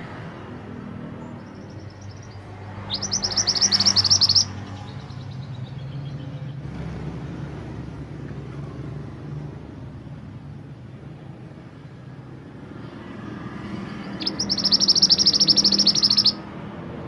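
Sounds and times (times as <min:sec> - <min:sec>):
songbird trilling: 0:01.2 - 0:06.6, 0:13.9 - 0:16.5.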